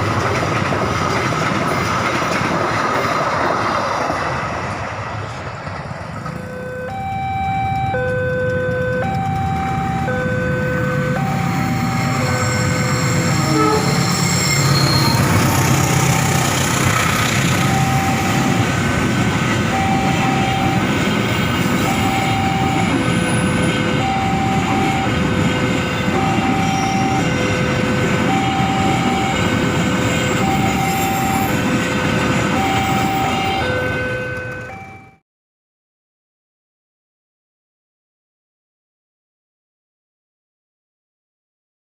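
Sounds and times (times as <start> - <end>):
train wheels rumbling on rails: 0.0 - 35.0
crossing alarm two alternating tones: 6.4 - 16.6, 17.4 - 35.2
locomotive horn: 8.3 - 15.9, 21.9 - 34.8.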